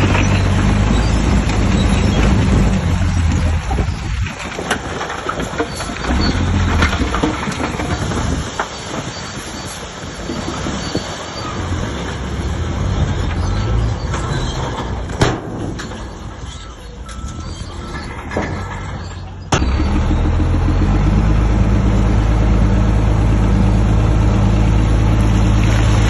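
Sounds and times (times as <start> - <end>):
steel tracks clanking and squealing: 0.0 - 12.3, 13.0 - 20.8
bulldozer diesel engine: 0.0 - 26.0.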